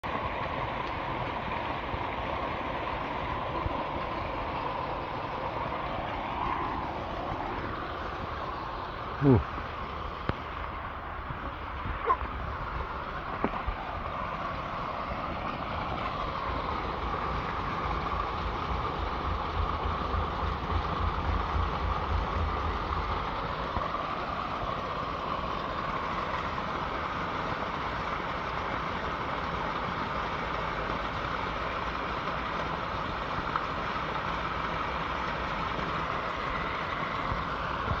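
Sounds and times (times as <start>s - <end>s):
water rushing: 0.0s - 38.0s
low rumble: 15.8s - 24.5s.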